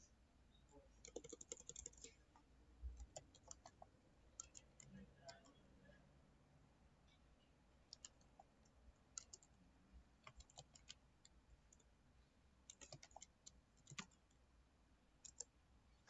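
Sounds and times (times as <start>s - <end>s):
computer keyboard typing: 1.0s - 2.2s, 2.9s - 5.6s, 7.9s - 9.6s, 10.2s - 11.9s, 12.7s - 14.4s, 15.2s - 15.5s.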